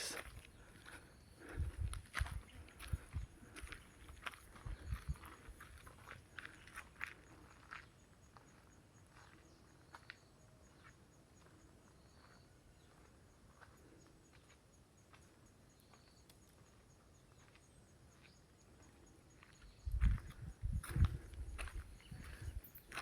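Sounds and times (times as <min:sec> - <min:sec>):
birds chirping: 0:00.0 - 0:08.0, 0:15.7 - 0:23.0
faint footsteps on a path: 0:00.0 - 0:23.0.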